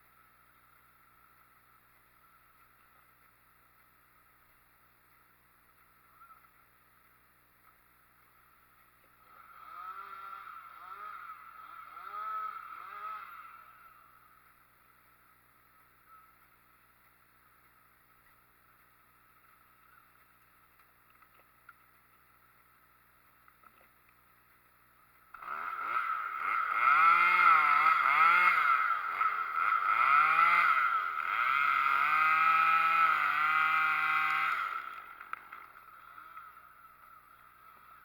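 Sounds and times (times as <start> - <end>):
chainsaw engine running: 0.0 - 20.6, 24.5 - 38.0.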